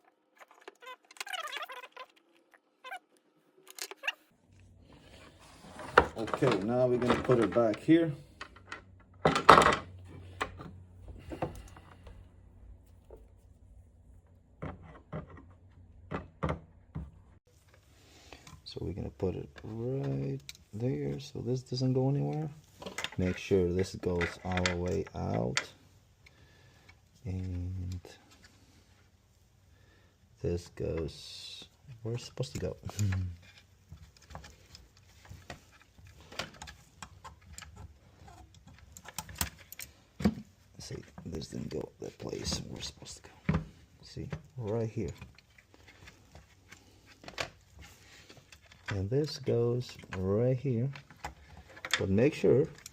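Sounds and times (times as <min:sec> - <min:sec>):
plastic and metal parts clicking: 0:03.7 - 0:04.1, 0:22.3 - 0:25.8, 0:32.4 - 0:41.8, 0:50.8 - 0:52.9.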